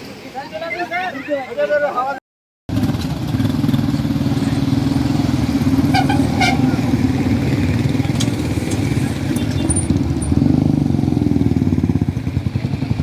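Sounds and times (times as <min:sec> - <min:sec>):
motorcycle engines rumbling: 0:02.7 - 0:13.0.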